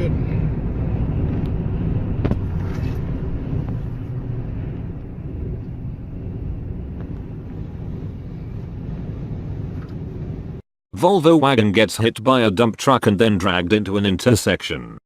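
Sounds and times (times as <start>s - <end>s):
vehicle road noise: 0.0s - 10.6s
wind buffeting microphone: 0.0s - 10.6s.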